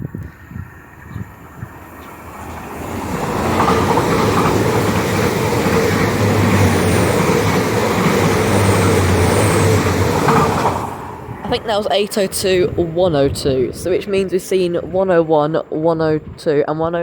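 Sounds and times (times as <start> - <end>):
train passing at speed: 0.0 - 16.6.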